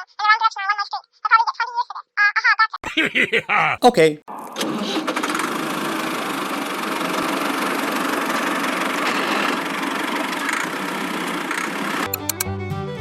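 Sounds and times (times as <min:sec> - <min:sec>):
small engine running steadily: 0:05.2 - 0:12.1.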